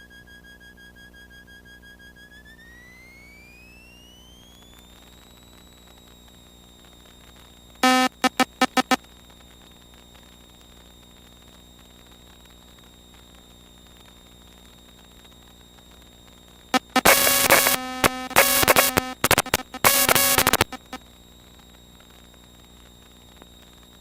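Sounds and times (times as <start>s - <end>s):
faint electronic hum: 0.0s - 24.0s
harsh electronic buzzing bursts: 7.8s - 9.0s, 16.7s - 21.0s.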